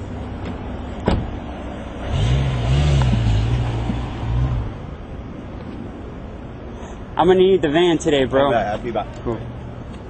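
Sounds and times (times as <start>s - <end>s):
car engine starting and running: 0.0s - 7.2s.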